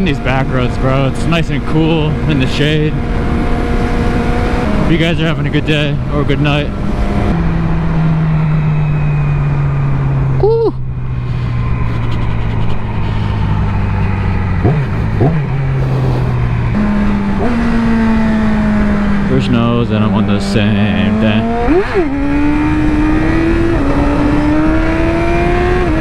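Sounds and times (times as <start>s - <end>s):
motorcycle engine cruising: 0.0s - 26.0s
wind noise at helmet: 10.8s - 19.2s.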